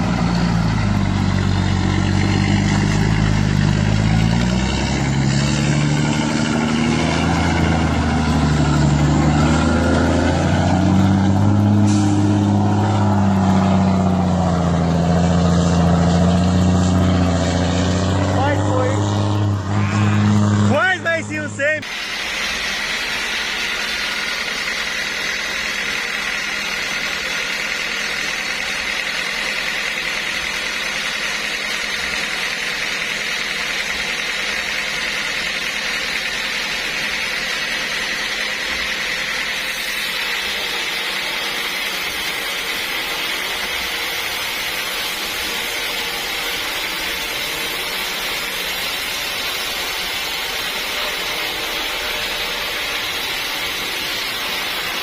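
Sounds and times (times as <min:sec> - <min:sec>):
machine running with high hiss: 0:21.8 - 0:55.0.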